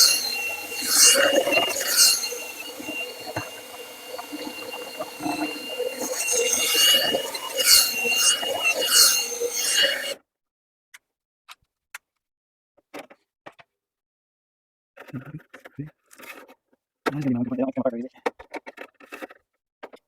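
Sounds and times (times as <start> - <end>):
brush scraping inside vent duct: 0.0 - 10.2
thin steady whine: 0.0 - 10.2.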